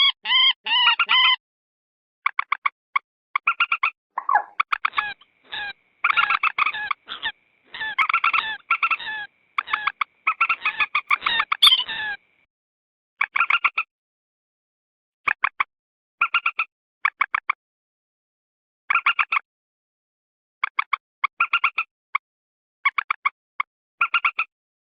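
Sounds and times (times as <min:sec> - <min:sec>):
moorhen clucking calls: 0:03.5 - 0:12.2.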